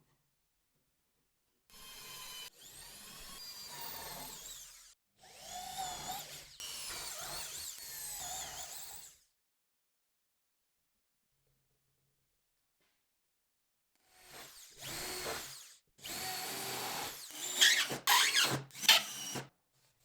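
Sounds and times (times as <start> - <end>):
power tool whining: 14.3 - 19.5.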